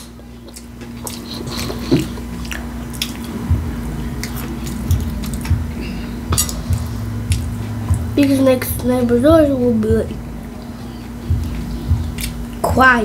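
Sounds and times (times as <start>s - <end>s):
person chewing food: 0.0s - 8.1s, 10.4s - 12.6s
faint steady hum: 0.0s - 13.0s.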